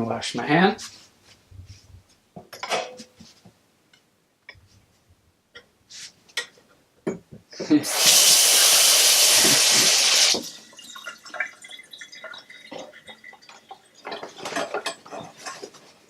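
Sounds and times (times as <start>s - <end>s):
tap running into sink: 9.2s - 10.5s.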